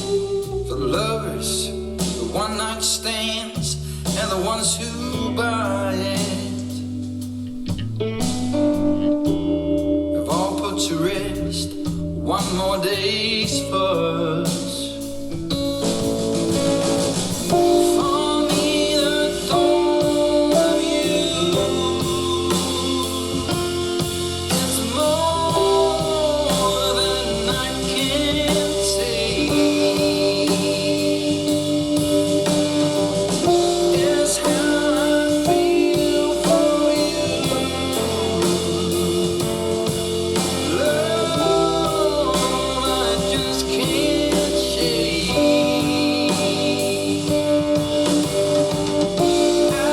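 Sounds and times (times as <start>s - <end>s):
rock blues song with singing: 0.0s - 49.9s.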